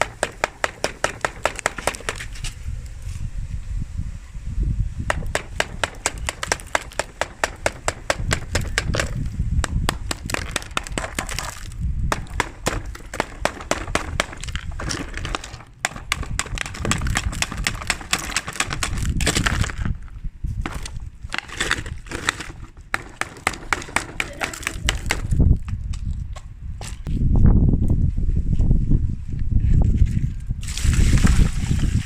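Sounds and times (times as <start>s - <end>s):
ice cubes clicking and knocking: 0.0s - 2.3s, 5.1s - 25.4s.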